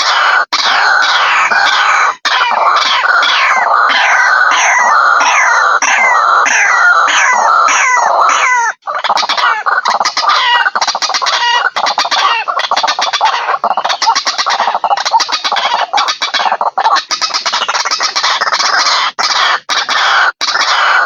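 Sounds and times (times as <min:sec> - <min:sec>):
harsh rapid bird chattering: 0:00.0 - 0:21.0
waterhen falling calls: 0:00.0 - 0:21.0.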